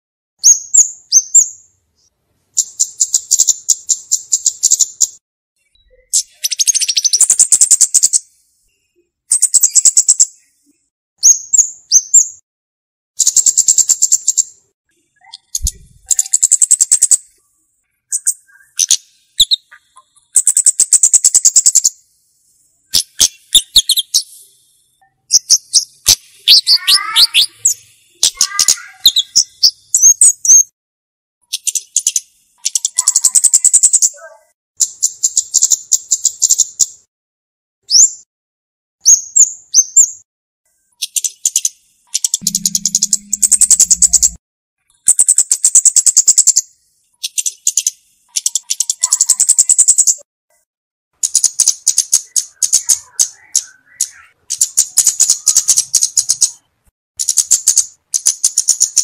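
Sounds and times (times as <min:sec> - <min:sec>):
bird chirping: 0:00.4 - 0:12.4, 0:13.2 - 0:30.7, 0:31.4 - 0:37.0, 0:37.9 - 0:38.3, 0:39.0 - 0:50.2, 0:51.2 - 0:59.0
bird ticking trills: 0:41.0 - 0:46.6
bird sliding notes: 0:42.4 - 0:44.4.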